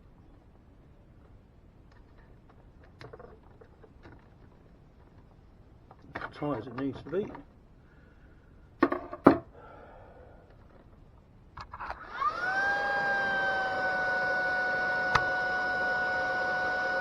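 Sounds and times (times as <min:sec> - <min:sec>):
vacuum cleaner motor whine: 0:11.8 - 0:17.0.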